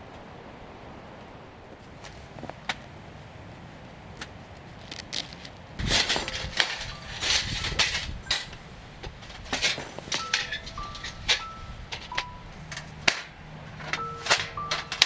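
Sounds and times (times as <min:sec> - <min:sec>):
dense rustling: 0:04.0 - 0:15.0
handling clicks: 0:04.8 - 0:15.0.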